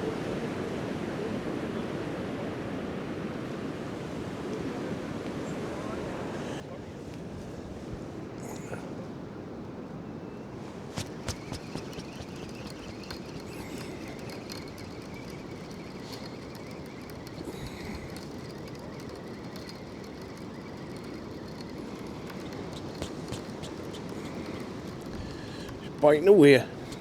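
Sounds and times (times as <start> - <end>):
wind: 0.0 - 27.0
light mechanical clicks: 11.0 - 27.0.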